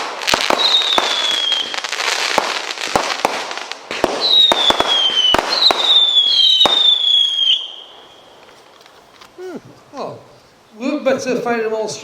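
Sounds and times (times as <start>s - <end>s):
whistling firework shots: 0.0s - 8.5s
firework bangs: 0.0s - 8.8s
firework crackling: 0.0s - 9.4s.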